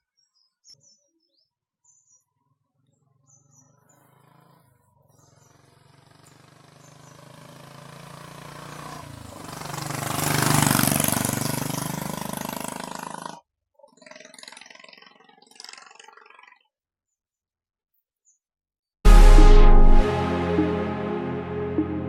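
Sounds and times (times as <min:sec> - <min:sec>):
motorcycle engine passing by: 0:03.3 - 0:13.4.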